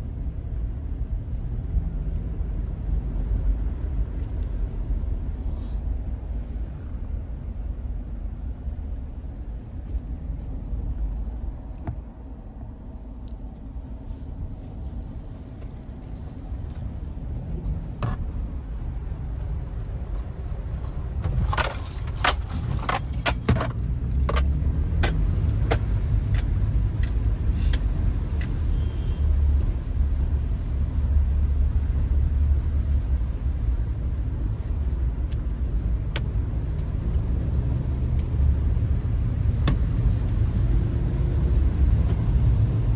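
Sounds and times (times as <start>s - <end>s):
car road and engine rumble: 0.0s - 42.9s
sharp clicks and rattles: 19.8s - 28.6s.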